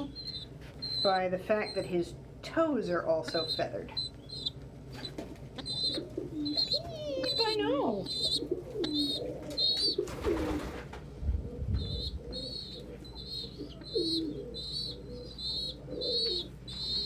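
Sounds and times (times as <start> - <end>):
young pigeons peeping: 0.0 - 17.0
pigeons cooing: 3.2 - 17.0.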